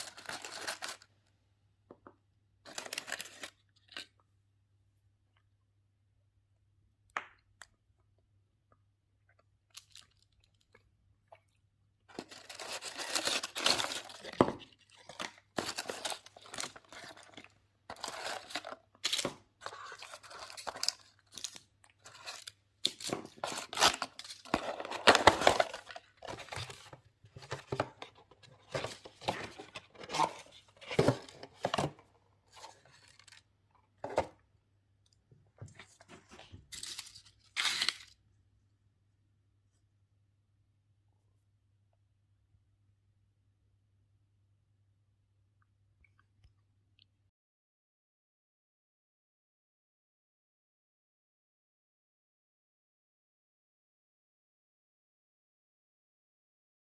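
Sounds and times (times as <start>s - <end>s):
packaging tearing and crinkling: 0.0s - 1.0s, 2.7s - 4.0s, 12.1s - 27.9s, 36.7s - 38.2s.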